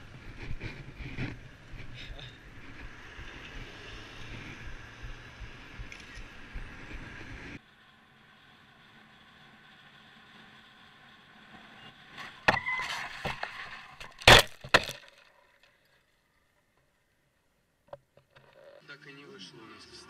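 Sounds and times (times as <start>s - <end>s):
road and wind noise: 0.0s - 15.0s.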